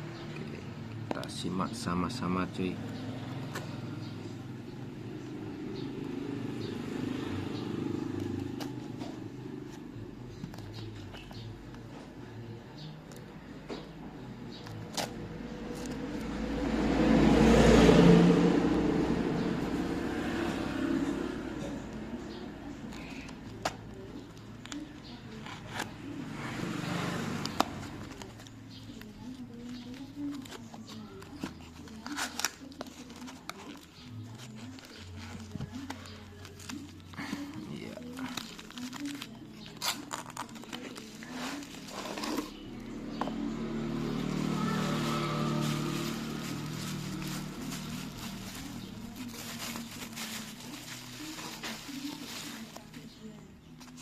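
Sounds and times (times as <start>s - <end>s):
parcel clicks and crinkles: 27.5s - 42.6s, 45.9s - 54.0s
packaging rustling and tearing: 28.1s - 42.6s, 44.8s - 53.1s.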